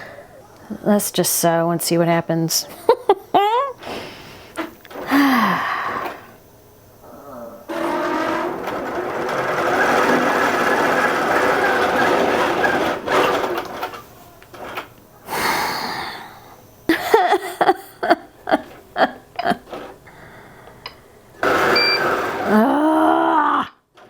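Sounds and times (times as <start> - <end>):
quilting machine sewing: 7.7 - 14.9, 21.4 - 22.7.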